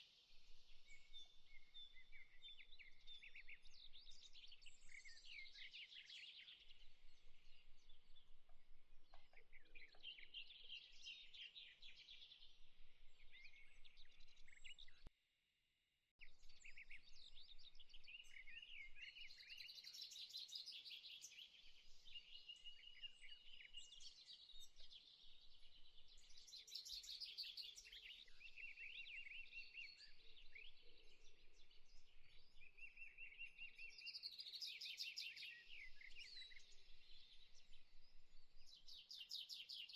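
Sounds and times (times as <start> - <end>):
small birds chirping and trilling: 0.0 - 15.1, 16.3 - 39.9.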